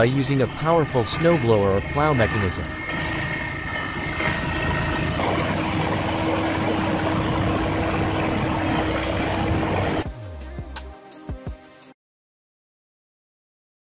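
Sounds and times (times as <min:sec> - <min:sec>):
snowblower engine rushing: 0:00.0 - 0:10.0.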